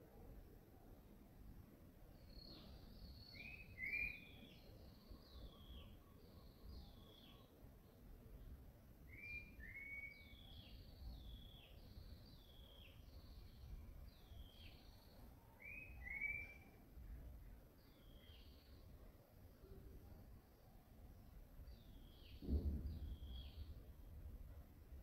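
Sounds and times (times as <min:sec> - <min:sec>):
faint bird whistles: 0:02.3 - 0:07.5, 0:09.1 - 0:13.1, 0:14.3 - 0:16.8, 0:21.7 - 0:23.8.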